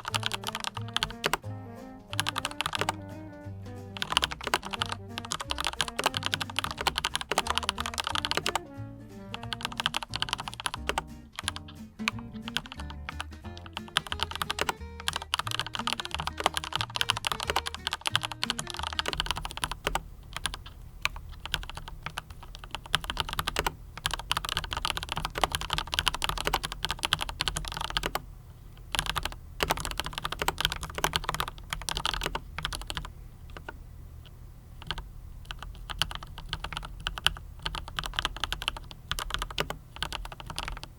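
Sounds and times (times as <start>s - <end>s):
mechanical keyboard typing: 0.0s - 1.5s, 2.1s - 3.1s, 4.0s - 8.7s, 9.3s - 28.2s, 28.9s - 33.8s, 34.8s - 40.9s
background music: 0.0s - 19.7s.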